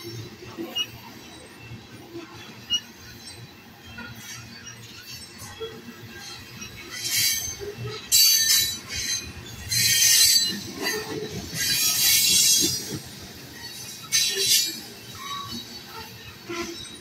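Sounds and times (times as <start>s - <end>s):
train wheels squealing on rails: 0.0s - 17.0s
freight train rumbling past: 5.7s - 17.0s.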